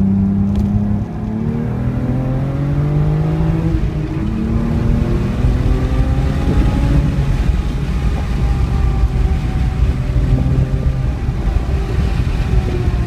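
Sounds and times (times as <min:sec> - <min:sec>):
car engine pulling: 0:00.0 - 0:13.0
road and drivetrain rumble: 0:00.0 - 0:13.0.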